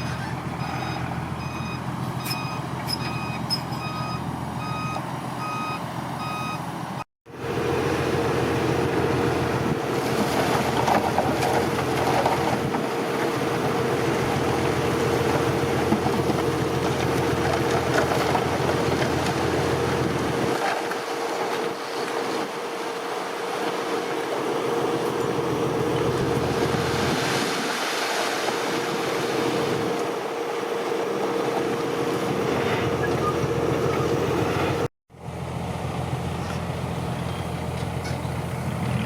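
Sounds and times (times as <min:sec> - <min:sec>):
diesel engine running: 0:00.0 - 0:39.0
reversing alarm beeping: 0:00.6 - 0:06.7.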